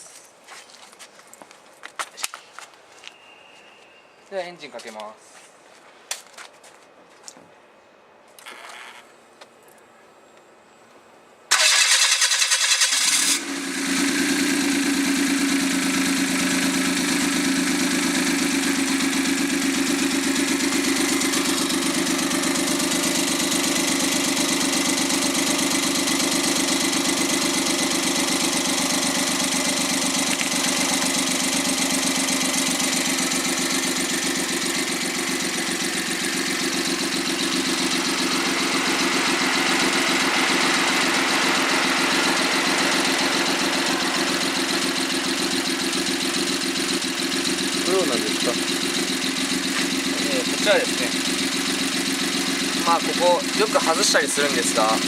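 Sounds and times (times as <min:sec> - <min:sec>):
engine starter cranking: 0:11.5 - 0:13.4
engine idling: 0:11.5 - 0:55.0.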